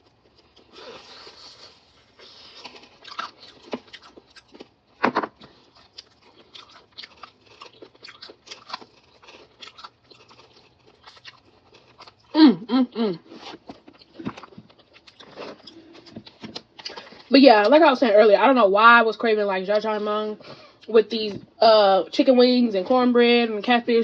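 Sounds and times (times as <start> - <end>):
crunching and chewing crispy food: 0.0 - 12.4, 13.2 - 17.8.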